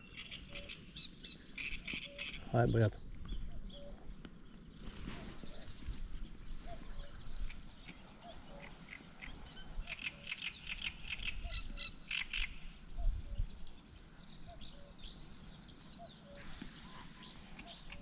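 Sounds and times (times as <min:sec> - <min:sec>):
birds quick chirping: 0:00.0 - 0:18.0.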